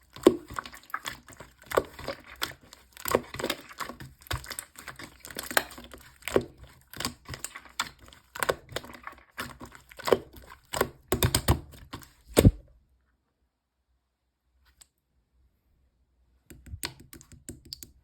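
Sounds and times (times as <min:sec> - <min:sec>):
slime clicking and popping: 0:10.1 - 0:11.6.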